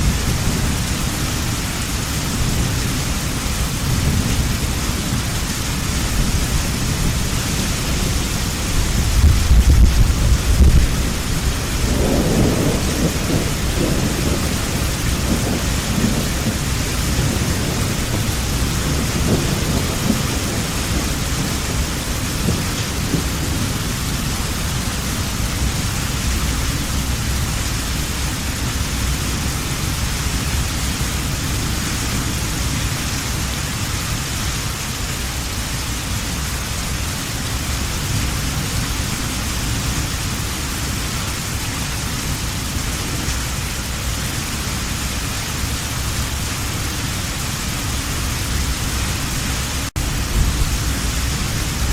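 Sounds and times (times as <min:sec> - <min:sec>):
thunder rumbling: 0:00.0 - 0:33.5, 0:37.4 - 0:51.9
heavy rain: 0:00.0 - 0:51.9.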